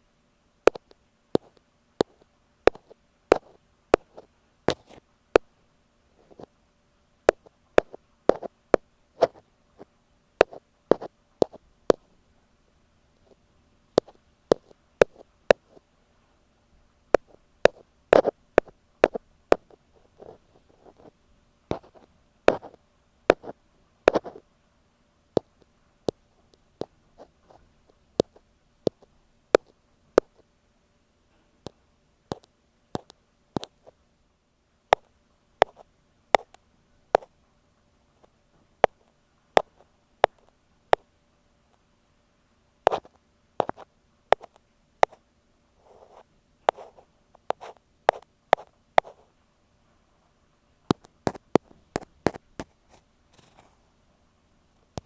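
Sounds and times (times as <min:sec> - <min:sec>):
ear pick tapping on microphone: 0:00.7 - 0:05.5, 0:07.3 - 0:09.4, 0:10.4 - 0:12.0, 0:14.0 - 0:15.8, 0:17.1 - 0:21.1, 0:21.7 - 0:24.4, 0:28.2 - 0:30.4, 0:32.3 - 0:33.8, 0:34.9 - 0:37.3, 0:39.6 - 0:41.0, 0:42.9 - 0:45.2, 0:46.0 - 0:49.2, 0:50.9 - 0:52.8.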